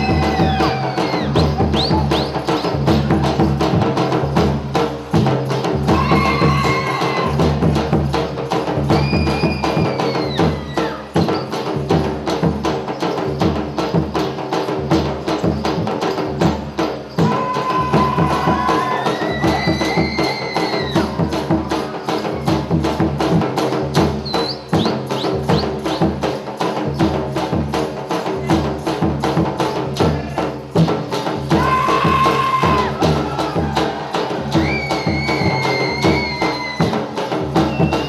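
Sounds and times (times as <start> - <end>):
sharp percussive strokes: 0.0 - 38.0
folk dance music: 29.5 - 38.0.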